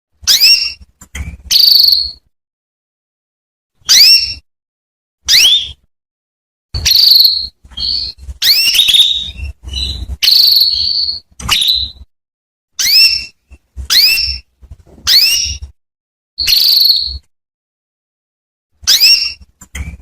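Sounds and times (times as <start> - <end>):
canary chirping: 0.2 - 2.3, 3.8 - 4.5, 5.3 - 5.9, 6.8 - 12.1, 12.8 - 15.8, 16.4 - 17.3, 18.8 - 20.0.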